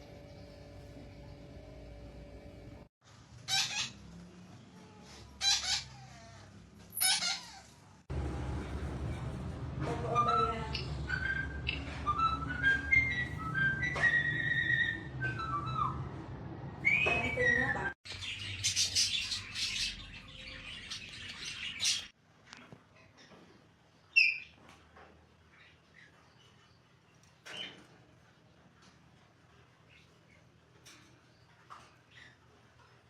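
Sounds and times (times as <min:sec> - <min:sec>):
parrot squawking and chirping: 0:03.4 - 0:04.1, 0:05.0 - 0:07.9, 0:10.1 - 0:16.1, 0:16.8 - 0:22.1
parrot whistling: 0:10.2 - 0:16.1.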